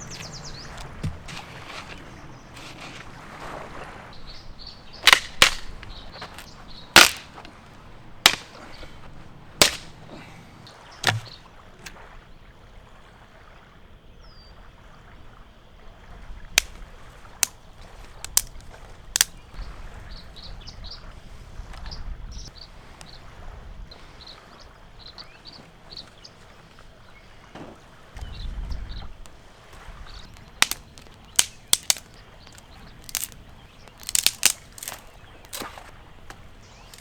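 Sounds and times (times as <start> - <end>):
faint outdoor background: 0.0 - 12.9, 24.7 - 37.0
sharp cracks: 4.8 - 10.4, 11.0 - 12.0, 16.6 - 16.8, 17.4 - 19.4, 30.2 - 37.0.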